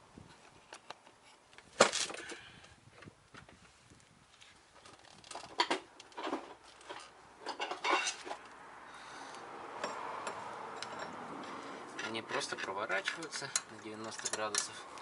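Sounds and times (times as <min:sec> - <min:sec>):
metal tools clinking and knocking: 0:05.0 - 0:08.5, 0:09.8 - 0:11.2, 0:12.0 - 0:14.9.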